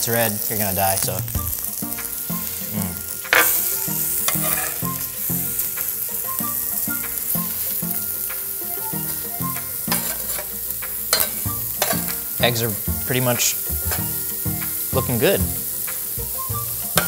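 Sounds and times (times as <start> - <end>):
food sizzling on a griddle: 0.0 - 17.0
metal spatula scraping griddle: 3.3 - 6.0, 9.0 - 15.4.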